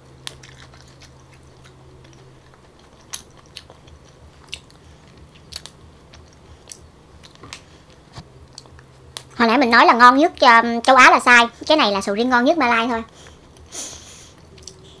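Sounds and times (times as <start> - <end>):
person chewing soft food: 0.0 - 9.4, 13.1 - 15.0.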